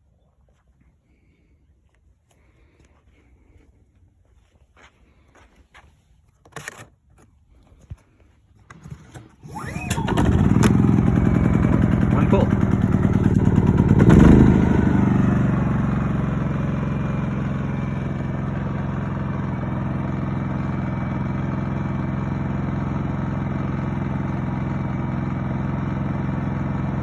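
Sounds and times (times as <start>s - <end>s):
generator engine running: 9.0s - 27.0s.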